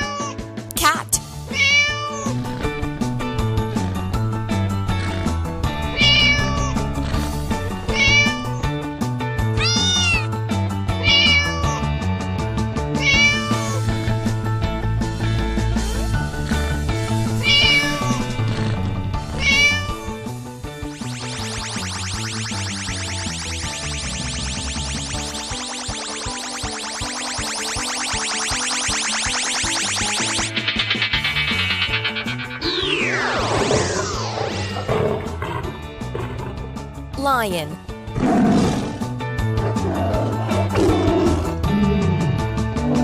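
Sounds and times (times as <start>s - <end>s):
cat meowing: 0.0s - 0.4s, 1.5s - 2.4s, 6.0s - 6.8s, 7.9s - 8.6s, 9.6s - 10.3s, 11.0s - 11.8s, 13.0s - 13.8s, 17.4s - 18.2s, 19.4s - 20.2s
background music with a beat: 20.7s - 34.8s.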